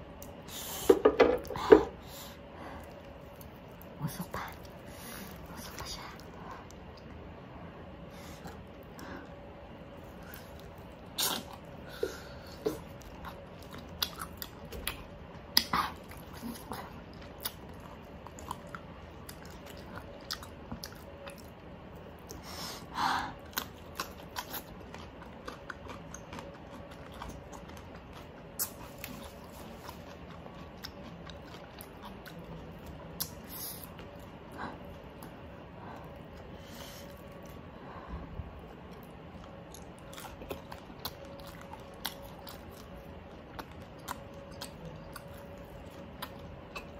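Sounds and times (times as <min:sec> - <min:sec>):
crunchy chewing: 0:10.0 - 0:22.5, 0:23.4 - 0:37.6, 0:38.6 - 0:46.9.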